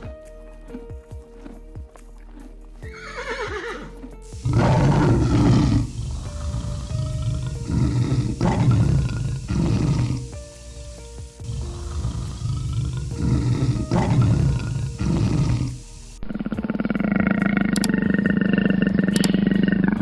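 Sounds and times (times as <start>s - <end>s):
background music: 0.0s - 20.0s
horse whinny: 2.8s - 10.2s
big cat growling and roaring: 3.3s - 10.4s, 11.4s - 20.0s.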